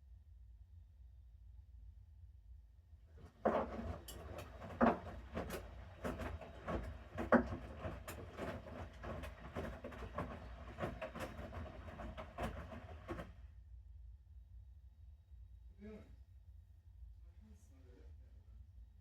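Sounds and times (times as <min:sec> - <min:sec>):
washing machine drum tumbling: 0:03.2 - 0:13.4
water and laundry sloshing: 0:03.2 - 0:13.4.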